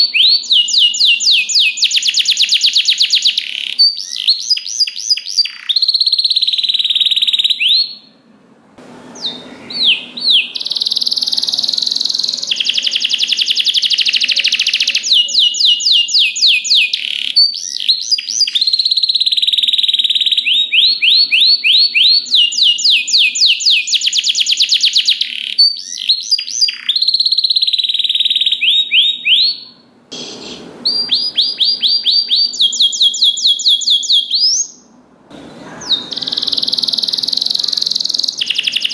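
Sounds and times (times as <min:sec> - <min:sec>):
canary singing with trills: 0:00.0 - 0:08.2, 0:09.0 - 0:38.9.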